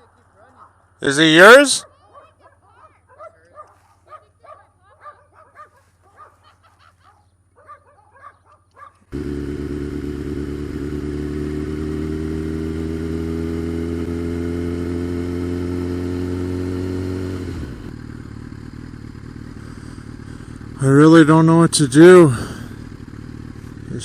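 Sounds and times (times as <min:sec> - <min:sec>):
motorcycle engine pulling: 0:09.0 - 0:24.0.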